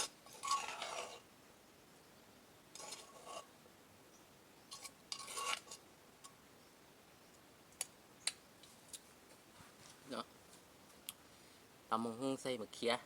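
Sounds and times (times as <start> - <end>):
utensils scraping on a plate: 0.0 - 1.2, 2.8 - 3.5, 4.7 - 5.8.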